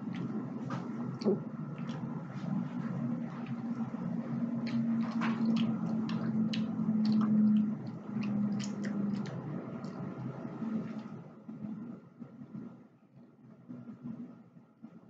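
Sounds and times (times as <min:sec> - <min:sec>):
wet chewing of a snack: 0:00.0 - 0:11.8
low steady hum: 0:00.0 - 0:15.0.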